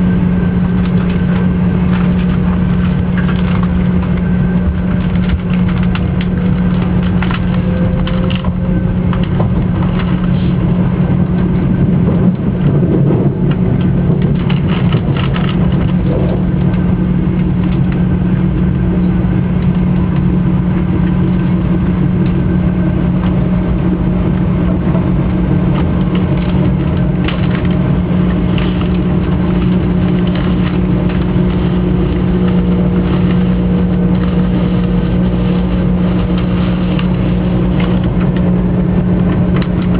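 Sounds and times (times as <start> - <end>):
bullet train rumble: 0.0 - 39.9
constant low hum: 0.0 - 39.9.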